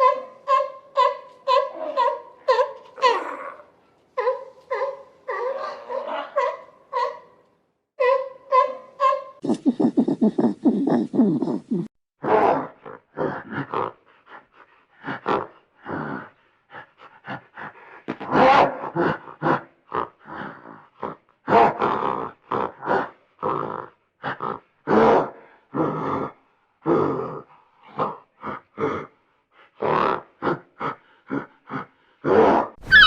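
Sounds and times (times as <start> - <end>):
animal low pulsing grunt: 9.4 - 11.9
animal short repeated calls: 32.8 - 33.0.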